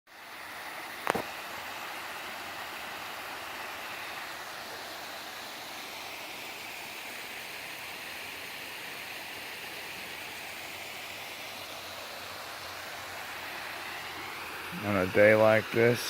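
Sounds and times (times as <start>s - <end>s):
small waterfall splashing: 0.1s - 16.0s.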